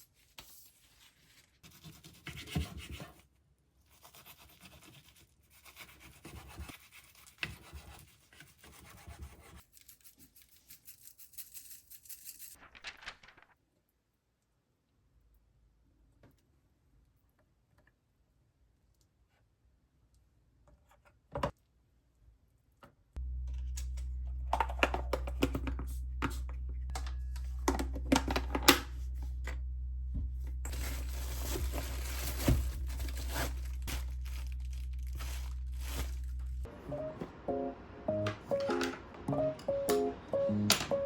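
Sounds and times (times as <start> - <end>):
steady low hum: 23.2 - 40.9
crinkly packaging tearing: 30.7 - 36.7.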